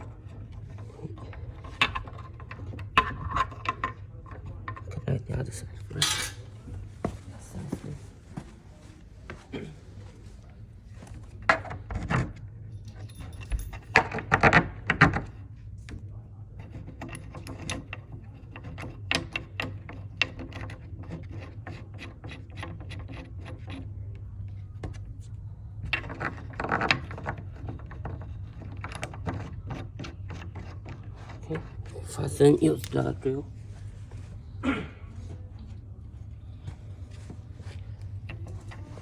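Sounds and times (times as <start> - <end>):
low steady hum: 0.0 - 39.0
metal hardware clinking and rattling: 5.9 - 6.4, 12.8 - 14.5.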